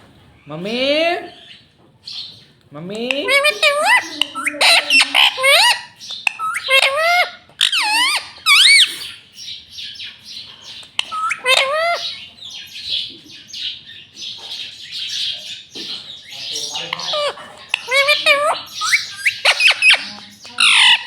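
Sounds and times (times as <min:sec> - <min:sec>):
parrot chattering softly: 0:03.1 - 0:09.2, 0:10.6 - 0:12.3, 0:14.2 - 0:21.0
parrot squawking: 0:03.2 - 0:09.3, 0:10.8 - 0:21.0.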